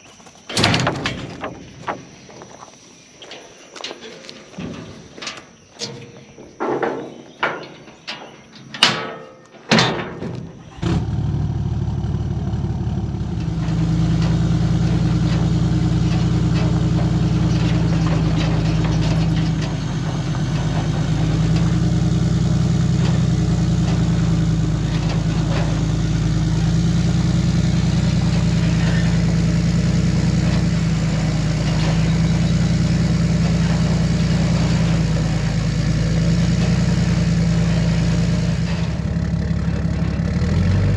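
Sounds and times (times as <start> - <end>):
vehicle engine starting and running: 10.6 - 40.9.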